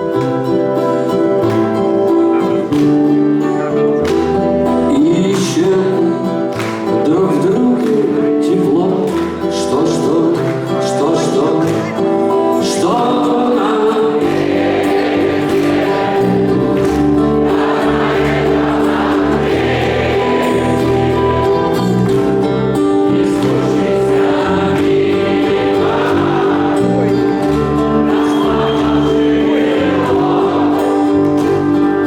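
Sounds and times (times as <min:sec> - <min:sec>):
live band music: 0:00.0 - 0:05.8, 0:13.7 - 0:32.0.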